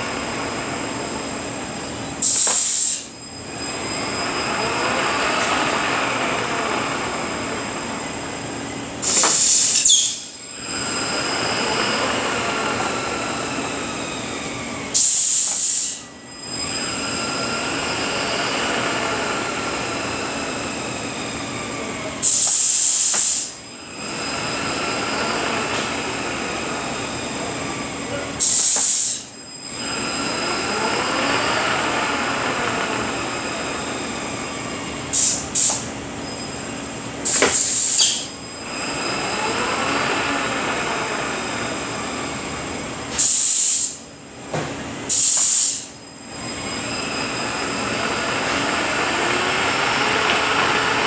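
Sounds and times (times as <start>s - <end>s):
transmission gear whine: 0.0s - 51.0s
loud burst of hiss: 2.2s - 3.2s, 9.0s - 11.0s, 14.9s - 16.8s, 22.2s - 23.6s, 28.4s - 29.4s, 35.1s - 36.0s, 37.2s - 38.4s, 43.1s - 44.1s, 45.1s - 46.0s.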